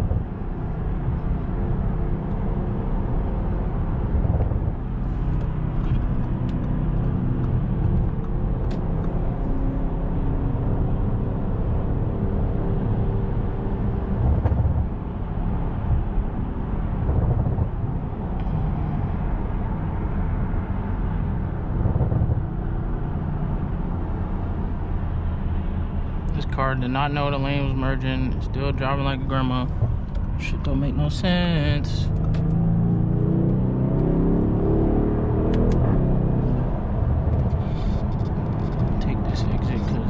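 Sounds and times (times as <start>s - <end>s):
car engine hum: 0.0s - 40.0s
road noise: 0.0s - 40.0s.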